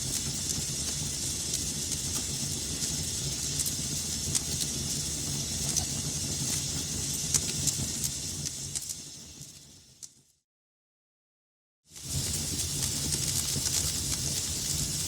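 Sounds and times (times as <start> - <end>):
wood fire burning: 0.0 - 10.2, 11.9 - 15.0
fire crackles and pops: 0.0 - 10.3, 11.9 - 15.0.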